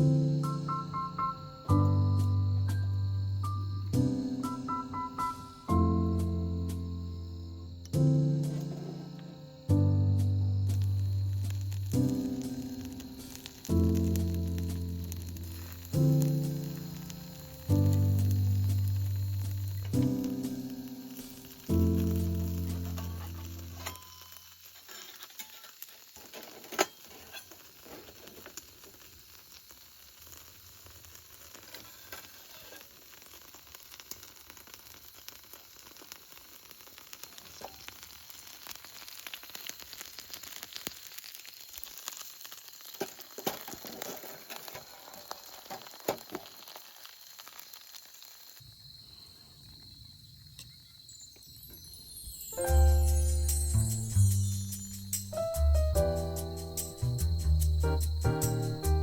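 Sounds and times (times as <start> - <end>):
food sizzling in a pan: 0.0 - 49.1, 50.7 - 59.0
sharp pops and crackles: 7.8 - 48.7.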